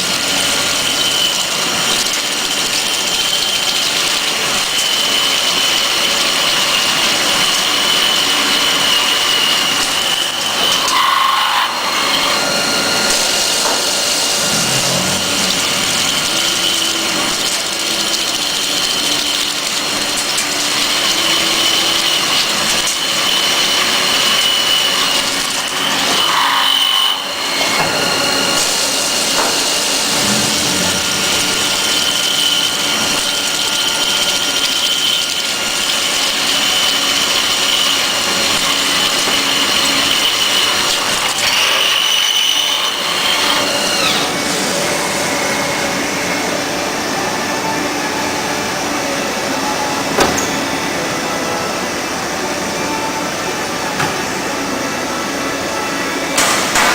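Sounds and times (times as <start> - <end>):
drilling machine spindle whine: 0.0 - 56.9.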